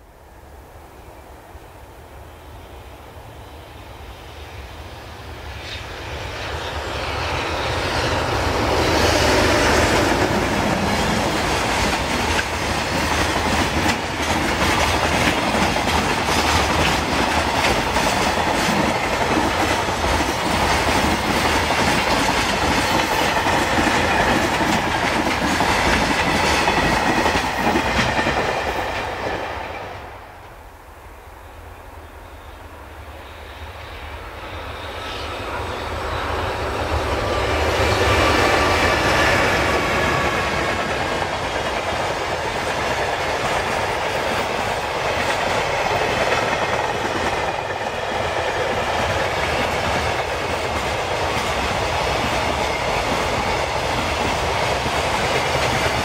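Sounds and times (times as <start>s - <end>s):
train wheels clattering: 6.9s - 30.1s, 36.5s - 56.0s.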